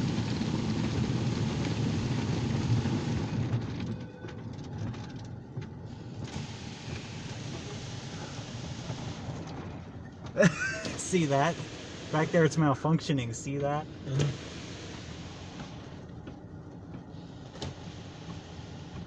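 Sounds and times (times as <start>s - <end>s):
car wash brushes scrubbing car: 5.2s - 19.0s.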